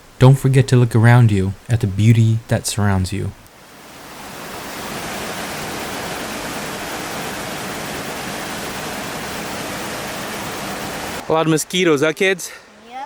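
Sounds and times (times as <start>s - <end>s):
rushing water: 3.4s - 12.6s.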